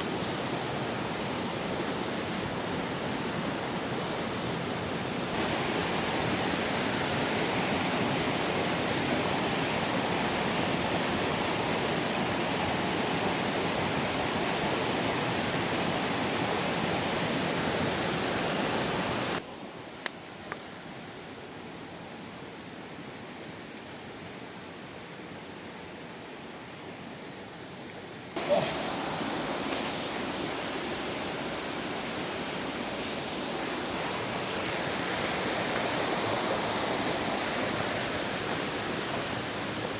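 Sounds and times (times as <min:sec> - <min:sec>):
river rushing: 0:00.0 - 0:19.4, 0:28.4 - 0:39.9.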